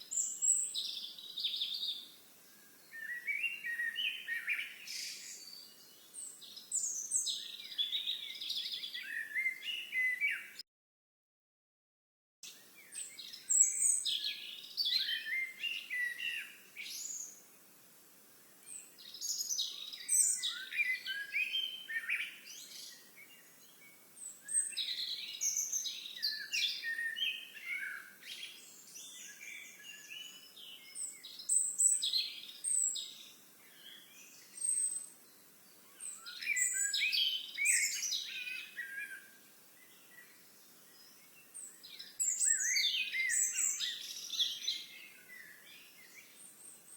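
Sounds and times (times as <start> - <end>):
songbirds warbling: 24.3 - 39.3, 39.9 - 46.9.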